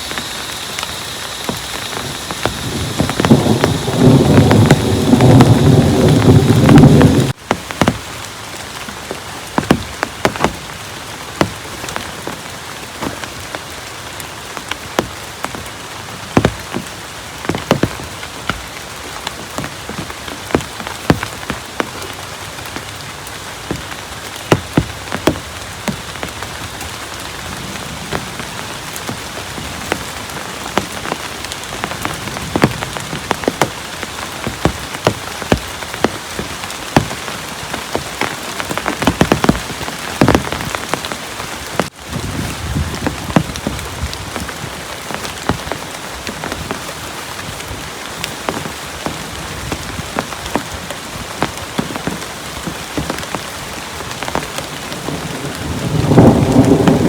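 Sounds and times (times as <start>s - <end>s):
heavy rain falling: 0.0s - 57.0s
raindrops tapping a surface: 0.0s - 57.0s.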